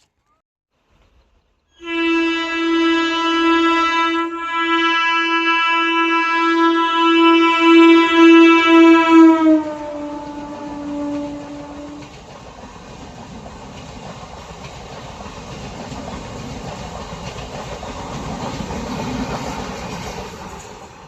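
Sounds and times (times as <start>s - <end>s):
locomotive horn blast: 1.8s - 12.0s.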